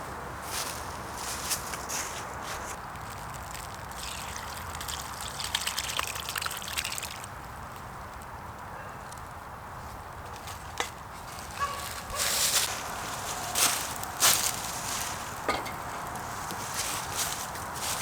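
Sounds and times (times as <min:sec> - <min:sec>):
water trickling and splashing: 0:02.9 - 0:07.4.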